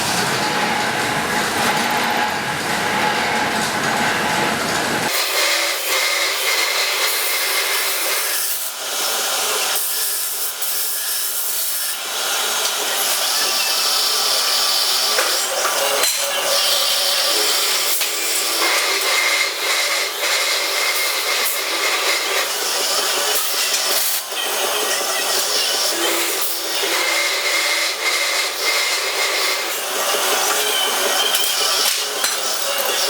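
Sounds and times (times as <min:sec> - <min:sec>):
tool scraping metal: 0:12.6 - 0:33.0.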